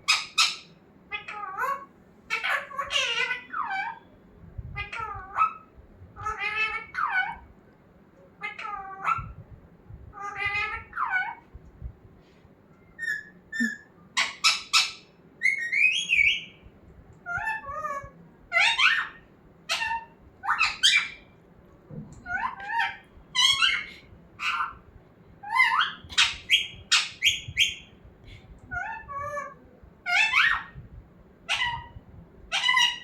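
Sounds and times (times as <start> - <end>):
parrot squawking: 0.1 - 4.0, 6.2 - 7.4, 8.4 - 9.3, 13.0 - 16.5, 17.3 - 21.2, 22.3 - 24.8, 25.4 - 27.9, 28.8 - 30.8, 31.5 - 31.9, 32.5 - 33.0.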